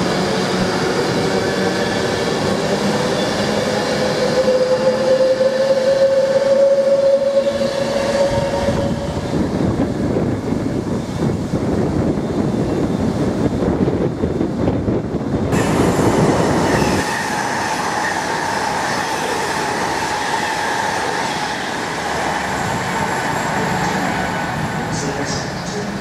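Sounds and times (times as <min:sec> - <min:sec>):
train rushing hiss: 0:00.0 - 0:09.8, 0:15.5 - 0:26.0
electric train rumble: 0:00.0 - 0:26.0
train steady whine: 0:00.0 - 0:26.0.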